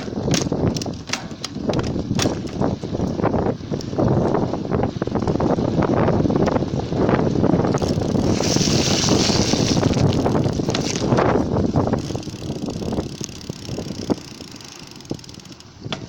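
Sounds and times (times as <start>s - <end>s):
bicycle frame rattling: 0.0s - 16.0s
wind buffeting microphone: 0.0s - 16.0s
tyre rumble: 4.1s - 16.0s.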